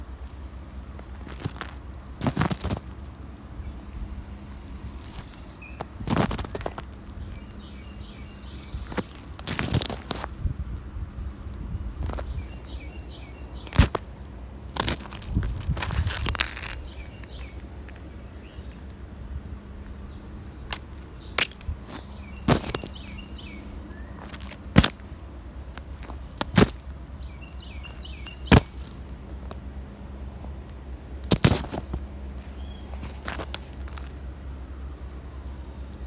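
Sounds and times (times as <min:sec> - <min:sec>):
small birds chirping: 0:00.0 - 0:36.0
footsteps crunching on icy snow: 0:00.2 - 0:03.1, 0:05.0 - 0:10.3, 0:13.6 - 0:19.0, 0:20.7 - 0:29.7, 0:31.3 - 0:34.2.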